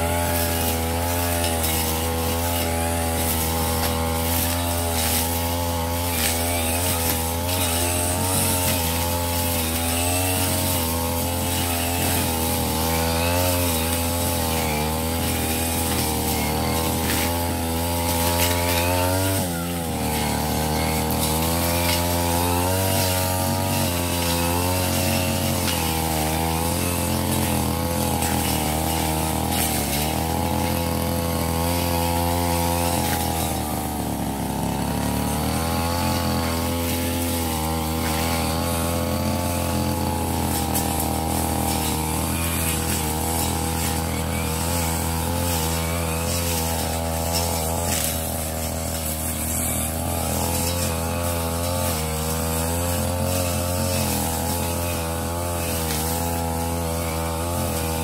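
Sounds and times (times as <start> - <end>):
brush cutter running at high revs: 0.0 - 58.0.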